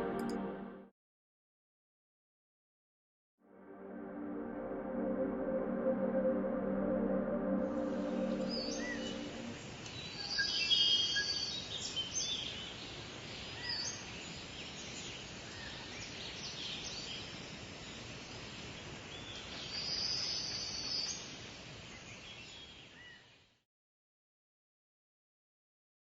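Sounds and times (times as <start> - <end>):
forest ambience hiss: 8.5 - 23.5.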